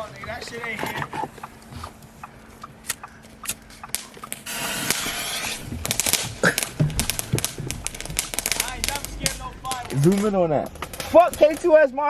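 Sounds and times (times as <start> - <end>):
firecrackers popping rapidly: 0.0 - 12.0
scattered clicks: 0.3 - 11.7
firework fuse hissing: 4.4 - 11.7.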